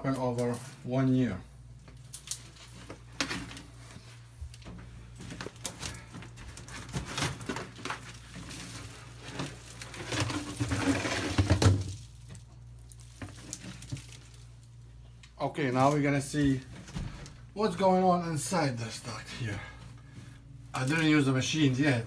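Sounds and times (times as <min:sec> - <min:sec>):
faint low hum: 0:00.0 - 0:22.0
knocks and clicks handling duct: 0:04.5 - 0:12.4
scraping and rattling: 0:05.2 - 0:12.0.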